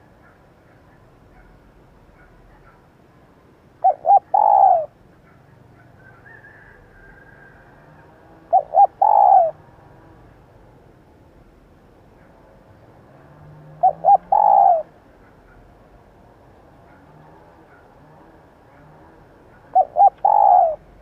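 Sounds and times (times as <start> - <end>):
dove cooing: 3.8 - 10.3, 13.2 - 15.7, 16.4 - 21.0.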